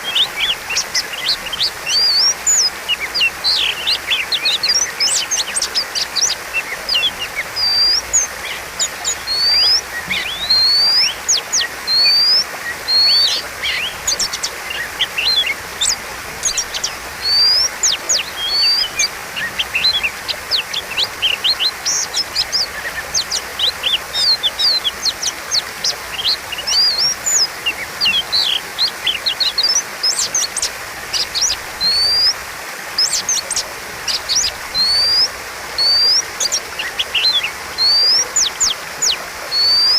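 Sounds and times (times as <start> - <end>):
bird singing whistles: 9.2 - 15.6, 17.2 - 22.0, 26.2 - 30.5, 31.4 - 32.4, 34.3 - 39.9.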